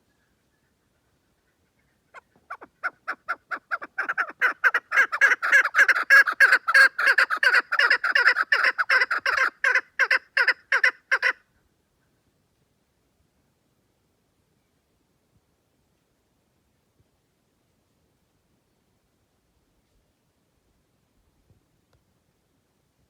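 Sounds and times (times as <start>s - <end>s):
partridge calling: 0.1s - 11.4s.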